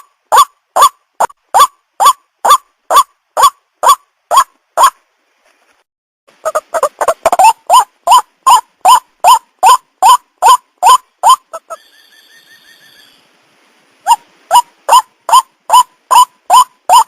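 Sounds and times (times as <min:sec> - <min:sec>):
waterhen calling: 0:06.4 - 0:13.3, 0:14.0 - 0:17.0
faint high trill: 0:11.7 - 0:13.3.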